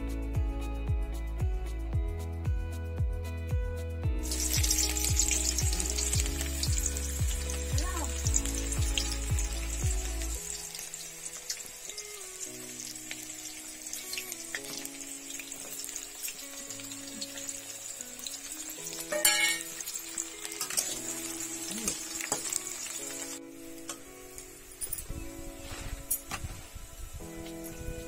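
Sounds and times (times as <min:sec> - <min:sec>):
background music with heavy beat: 0:00.0 - 0:10.4
onion frying in hot oil: 0:04.2 - 0:24.8.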